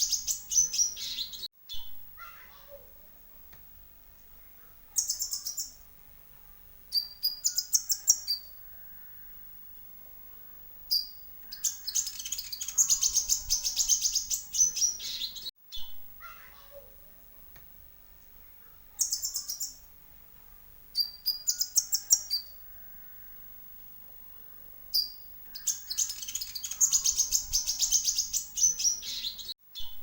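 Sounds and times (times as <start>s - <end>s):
bird singing rapid trills: 0.0s - 1.9s, 5.0s - 5.8s, 6.9s - 9.3s, 10.9s - 15.9s, 19.0s - 19.8s, 21.0s - 23.2s, 24.9s - 30.0s.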